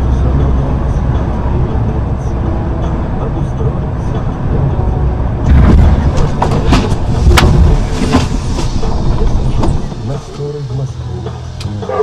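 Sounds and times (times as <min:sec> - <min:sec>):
vehicle rumble: 0:00.0 - 0:12.0
sharp knocks and bangs: 0:05.4 - 0:08.8.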